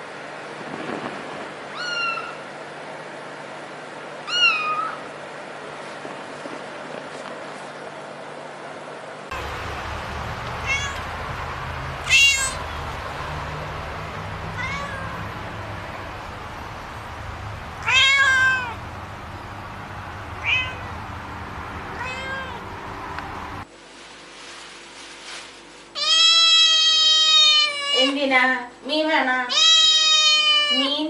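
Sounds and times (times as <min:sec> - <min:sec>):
cat meowing: 0:01.7 - 0:02.4, 0:04.2 - 0:05.0, 0:10.4 - 0:11.2, 0:12.0 - 0:12.9, 0:14.2 - 0:15.6, 0:17.4 - 0:18.8, 0:20.3 - 0:21.0, 0:21.9 - 0:22.7, 0:26.0 - 0:28.2, 0:29.5 - 0:31.0.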